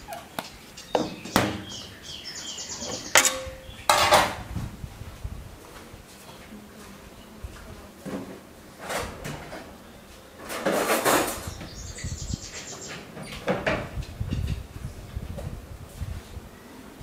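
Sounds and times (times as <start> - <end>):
containers and utensils knocking: 3.1 - 4.4.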